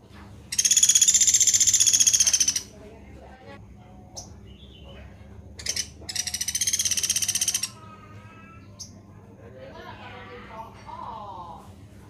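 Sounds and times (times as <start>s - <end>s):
buzzy bird trill: 0.5s - 2.7s, 5.6s - 9.0s
songbird calling: 0.5s - 2.7s, 4.1s - 7.8s.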